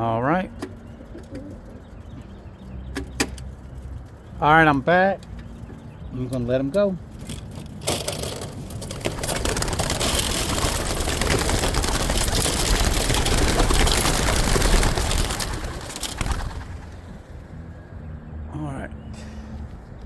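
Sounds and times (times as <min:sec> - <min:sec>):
pigeon wingbeats clattering: 0:07.1 - 0:17.3.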